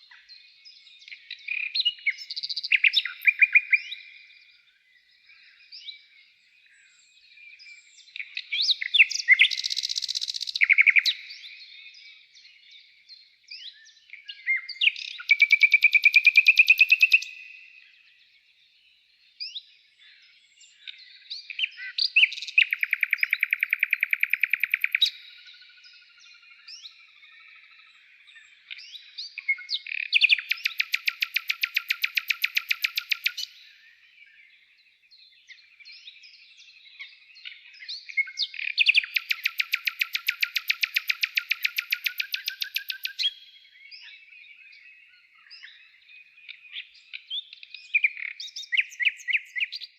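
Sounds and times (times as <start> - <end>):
songbirds chirping: 0.0 - 49.9
fast bird trill: 15.0 - 17.4, 22.0 - 25.3, 30.0 - 33.6, 38.7 - 43.4.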